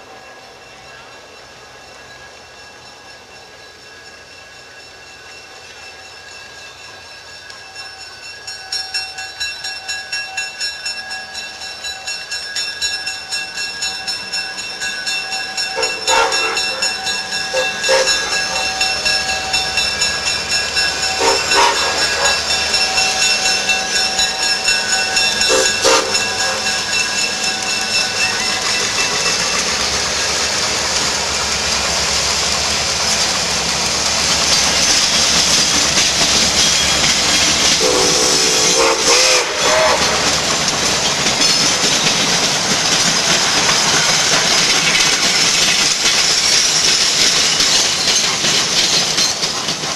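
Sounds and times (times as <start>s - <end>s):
steam locomotive exhaust beat: 0.0s - 49.9s
steam hissing: 10.5s - 49.9s
whistle-like tones: 15.5s - 29.5s.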